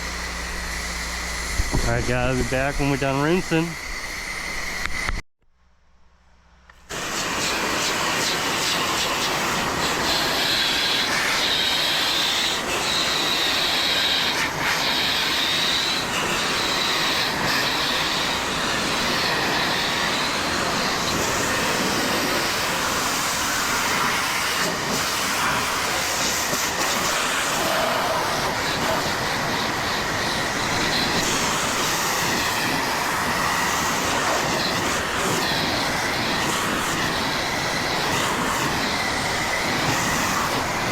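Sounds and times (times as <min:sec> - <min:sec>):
pressure washer spraying wood: 0:00.0 - 0:05.0, 0:06.9 - 0:40.9.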